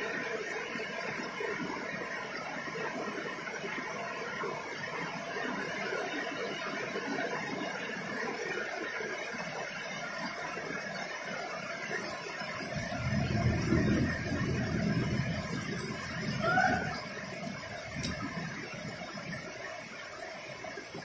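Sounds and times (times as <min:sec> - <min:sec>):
heavy rain splashing on pavement: 0:04.6 - 0:21.0.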